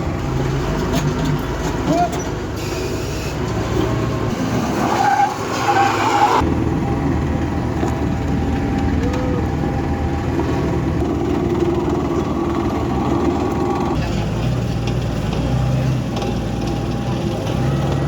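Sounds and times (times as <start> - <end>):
heavy truck engine running: 0.0 - 18.0
high squeal: 4.4 - 7.1.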